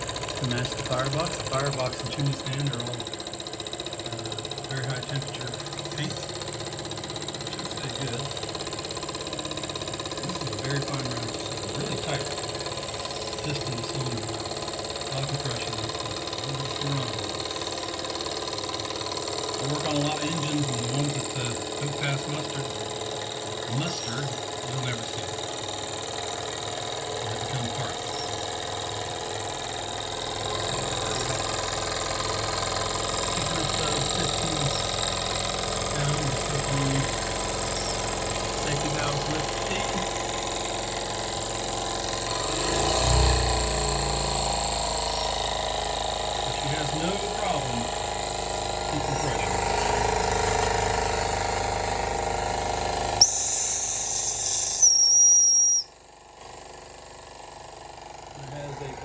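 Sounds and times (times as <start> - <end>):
steam engine mechanical clatter: 0.0 - 59.0
steam hiss: 53.2 - 55.8.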